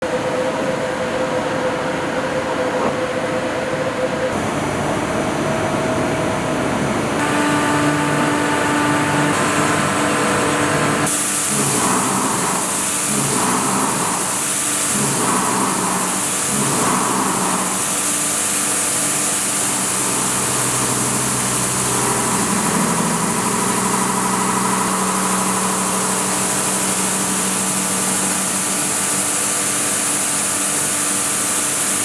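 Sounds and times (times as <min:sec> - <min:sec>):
milling cutter cutting steel: 0:07.2 - 0:29.2.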